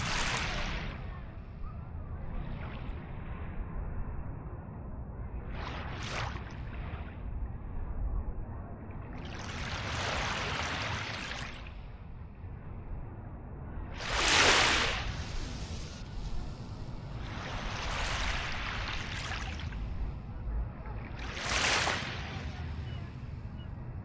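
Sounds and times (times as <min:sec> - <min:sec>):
small waves splashing: 0:00.0 - 0:03.4, 0:05.5 - 0:07.3, 0:09.1 - 0:12.0, 0:13.9 - 0:23.7
steady low rumble: 0:00.0 - 0:24.0.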